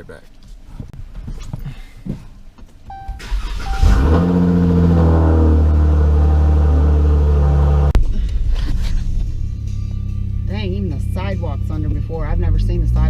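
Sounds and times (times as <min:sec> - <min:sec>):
car engine starting and idling: 0:02.7 - 0:13.0.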